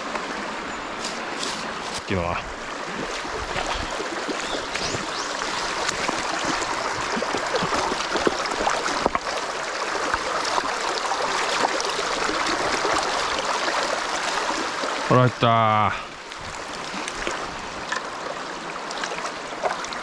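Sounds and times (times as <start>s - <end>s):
stream rushing over rocks: 0.0s - 20.0s
splashes and stony clicks: 2.8s - 14.7s, 16.2s - 20.0s.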